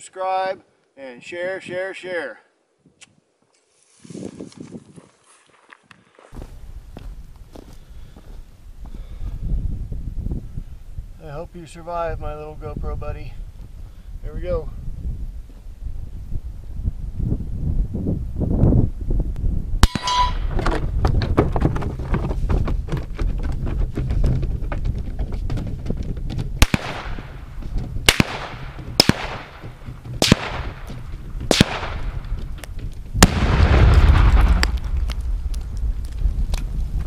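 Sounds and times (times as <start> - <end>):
rifle shots: 19.8 - 20.4, 26.6 - 27.4, 28.0 - 32.3, 33.2 - 34.7
steady low rumble: 26.5 - 37.0
big explosion: 33.2 - 37.0.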